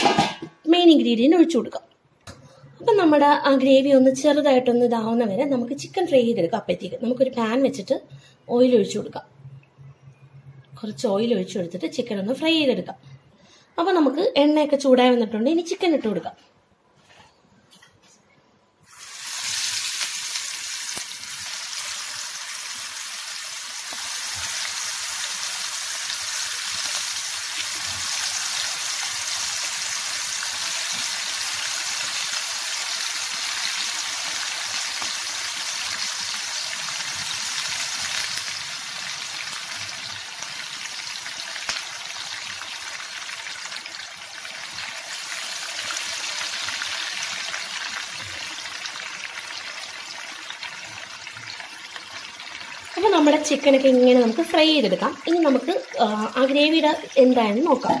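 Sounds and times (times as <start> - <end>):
chicken sizzling in hot oil: 18.8 - 58.0.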